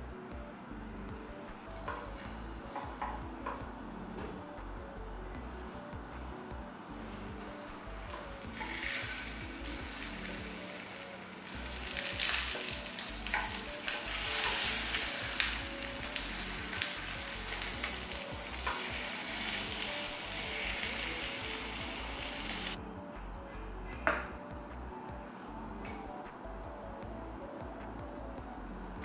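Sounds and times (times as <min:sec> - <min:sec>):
food sizzling in oil: 0:08.4 - 0:22.8.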